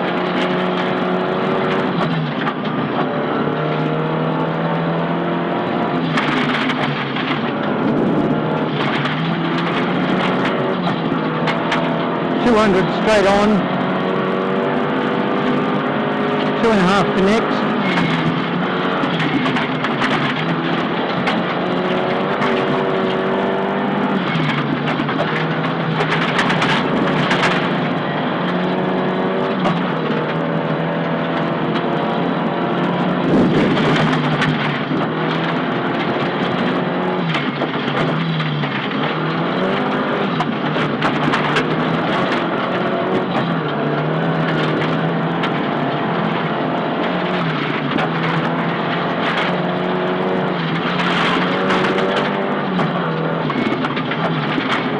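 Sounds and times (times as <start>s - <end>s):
road knocks and clatter: 0.0s - 12.4s, 17.6s - 54.9s
rally car engine driven hard: 0.0s - 54.9s.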